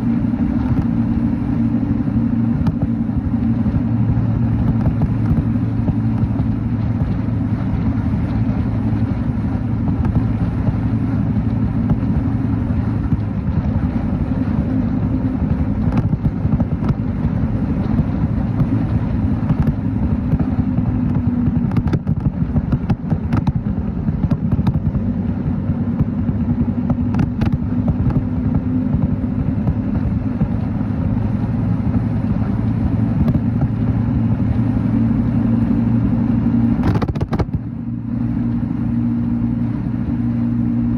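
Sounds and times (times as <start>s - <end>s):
motorcycle engine running: 0.0s - 40.9s
road and wind noise: 0.0s - 40.9s.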